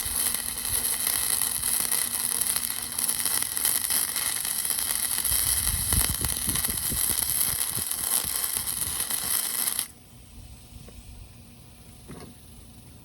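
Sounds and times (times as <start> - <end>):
welding arc hissing and crackling: 0.0 - 10.0.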